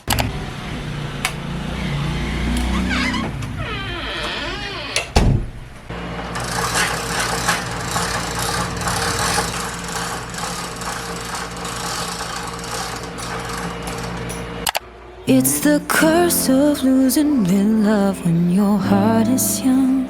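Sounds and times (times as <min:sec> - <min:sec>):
mechanical hum with rush: 0:00.0 - 0:03.6, 0:05.4 - 0:15.3.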